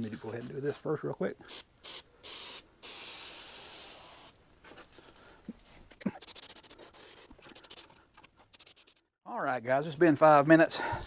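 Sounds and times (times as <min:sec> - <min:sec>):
aerosol can spraying: 0:01.5 - 0:04.4, 0:06.2 - 0:07.9, 0:08.5 - 0:09.0.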